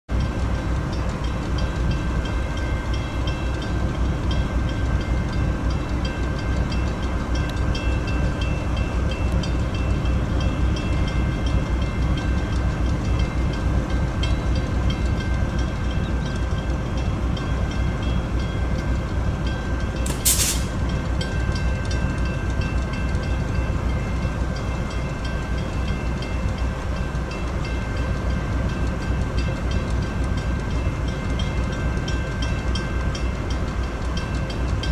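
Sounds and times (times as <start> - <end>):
diesel locomotive rumble: 0.1 - 34.9
brief hiss: 20.1 - 20.8.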